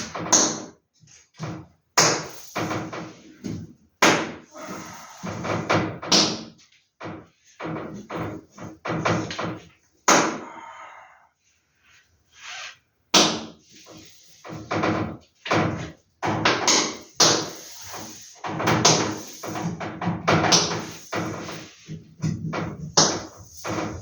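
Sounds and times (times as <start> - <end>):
sharp knocks and thuds: 18.4 - 24.0.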